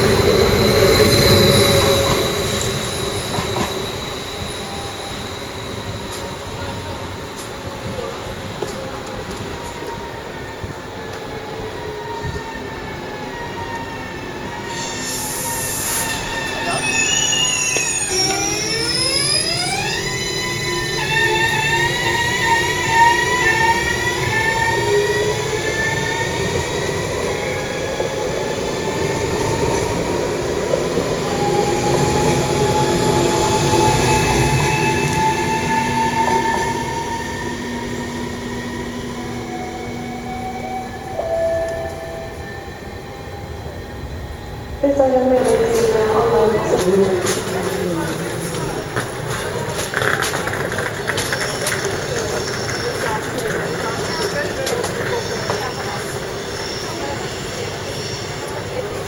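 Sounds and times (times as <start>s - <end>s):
traction motors whining: 0.0s - 59.0s
wheels rumbling on rails: 0.0s - 59.0s
wheel squeal: 13.4s - 26.8s, 48.4s - 59.0s.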